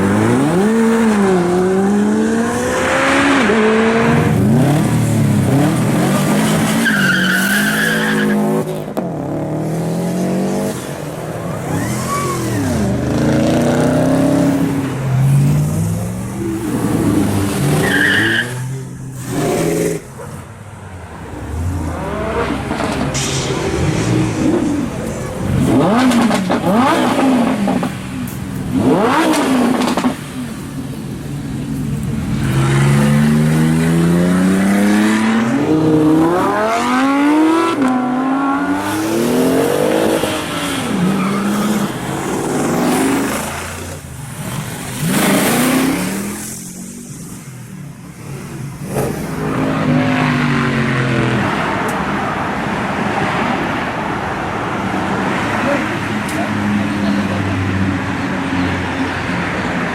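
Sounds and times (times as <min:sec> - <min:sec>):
car engines revving: 0:00.0 - 0:59.9
tire squeals: 0:06.0 - 0:08.7, 0:11.5 - 0:13.0, 0:17.0 - 0:20.2, 0:40.1 - 0:43.3.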